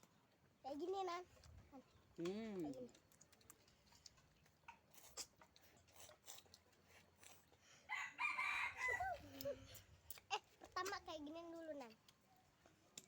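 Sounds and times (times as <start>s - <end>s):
rooster crowing: 7.9s - 9.2s.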